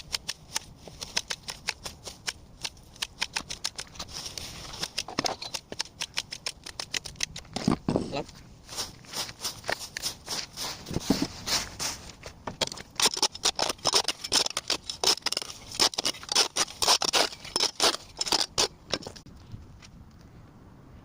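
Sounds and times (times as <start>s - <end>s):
sharp snipping strokes: 0.0s - 7.4s.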